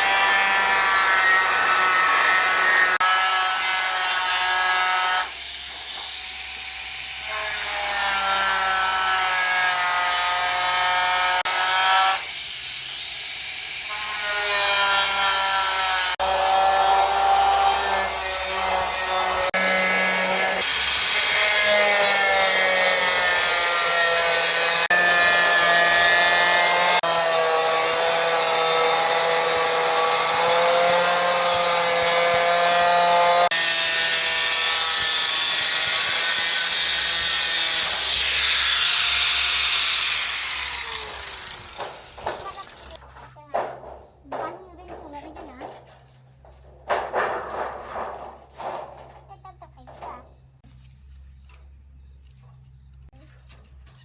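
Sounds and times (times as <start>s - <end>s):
power tool whining under load: 0.0s - 43.1s.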